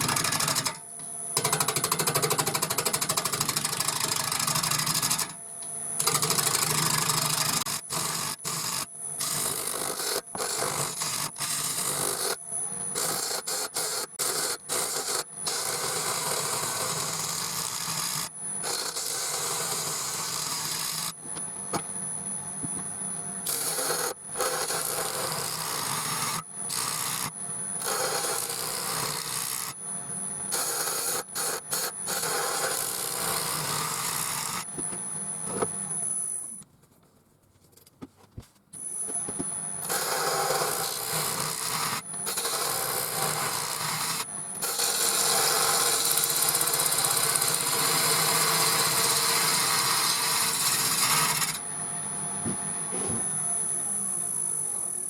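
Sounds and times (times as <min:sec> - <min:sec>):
gouge scraping wood on lathe: 0:13.0 - 0:21.0, 0:23.5 - 0:27.2, 0:39.8 - 0:51.6
lathe motor hum: 0:39.8 - 0:51.6.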